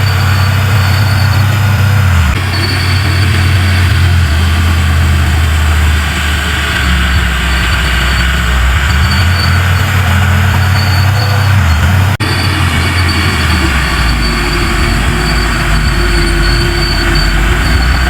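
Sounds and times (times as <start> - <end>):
heavy diesel engine droning: 0.0 - 18.0.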